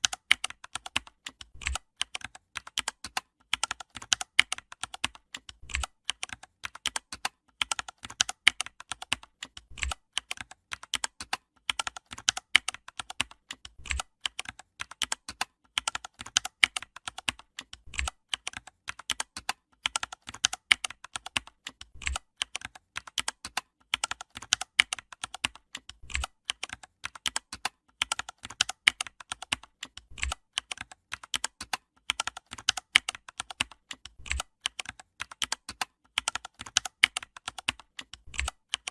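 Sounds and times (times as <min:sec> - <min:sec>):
keyboard typing: 0:00.0 - 0:38.9.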